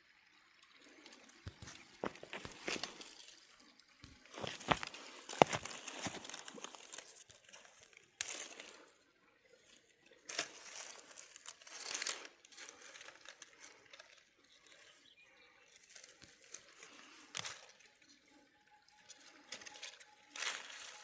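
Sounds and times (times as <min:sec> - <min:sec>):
rustling and crinkling: 0:01.4 - 0:03.4, 0:04.0 - 0:08.9, 0:09.7 - 0:15.0, 0:15.7 - 0:18.0, 0:19.0 - 0:21.0.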